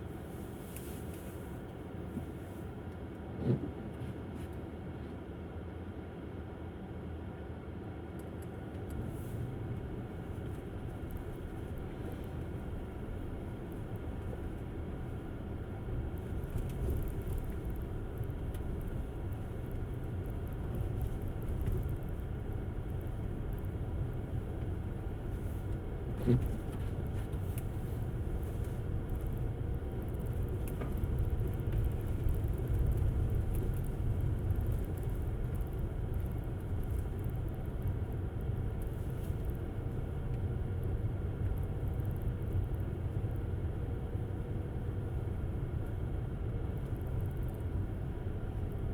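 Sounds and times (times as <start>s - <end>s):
tyre and road noise: 10.5s - 43.4s.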